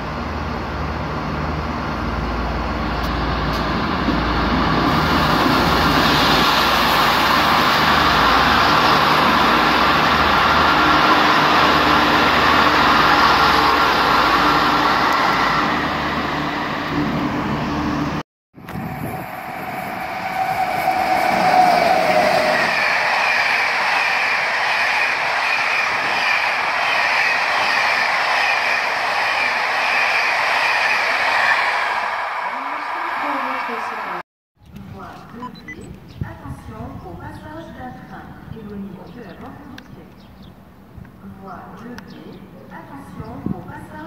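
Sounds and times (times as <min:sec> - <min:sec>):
locomotive hauling coaches approaching: 0:00.0 - 0:18.2, 0:18.8 - 0:34.2
train wheels rumbling: 0:00.0 - 0:34.1.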